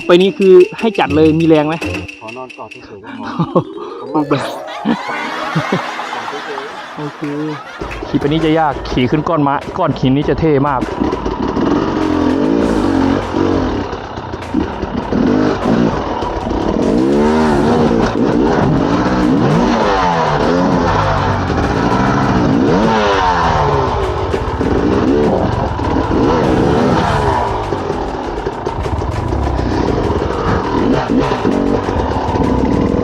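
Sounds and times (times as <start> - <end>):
dirt bike engine revving: 10.3 - 33.0.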